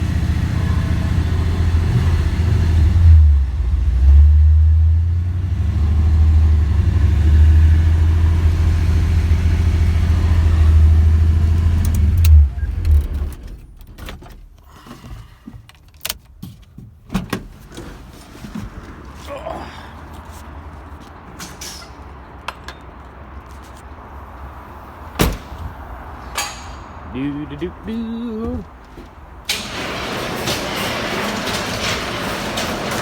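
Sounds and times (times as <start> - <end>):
truck engine rumbling: 0.0 - 14.8, 18.7 - 33.0
clicks and knocks: 26.2 - 27.2.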